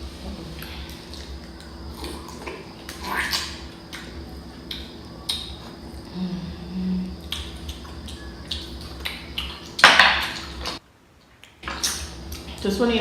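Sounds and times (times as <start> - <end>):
chewing sounds: 7.0 - 10.8.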